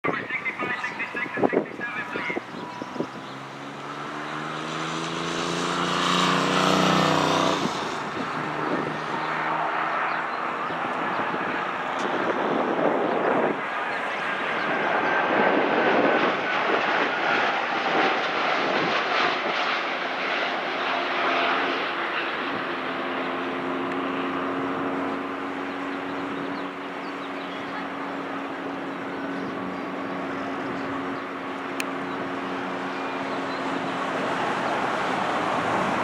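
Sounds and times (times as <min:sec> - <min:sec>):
jet airliner landing: 0:00.0 - 0:36.0
jet engine whine: 0:00.0 - 0:36.0.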